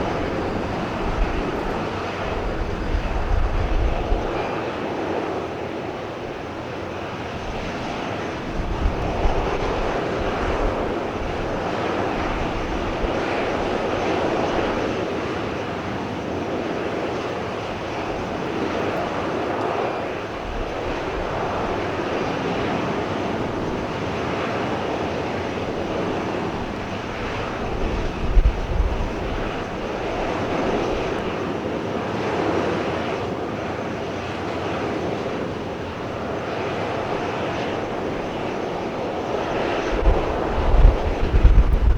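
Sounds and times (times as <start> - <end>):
wind buffeting microphone: 0.0 - 4.8, 7.3 - 15.4, 16.6 - 31.6, 35.5 - 41.9
jet engines running: 0.0 - 41.9.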